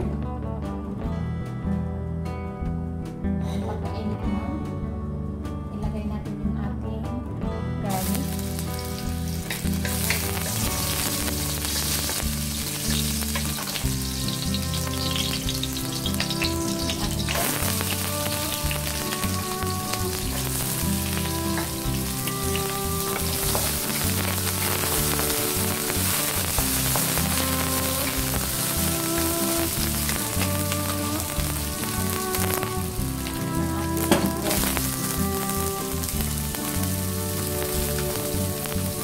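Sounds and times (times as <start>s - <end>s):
garlic and onion sizzling in oil: 7.9s - 39.0s.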